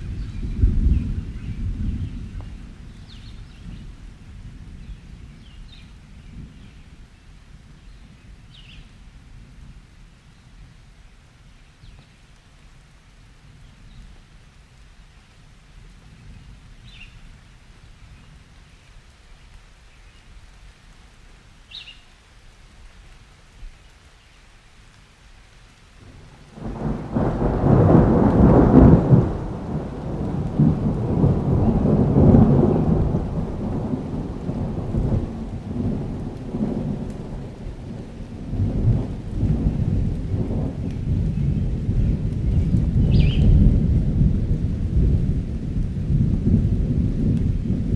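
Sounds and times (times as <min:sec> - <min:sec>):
thunder rumbling: 0:00.0 - 0:07.0, 0:26.0 - 0:47.9
light rain: 0:00.0 - 0:47.9
bird chirps: 0:43.1 - 0:43.5.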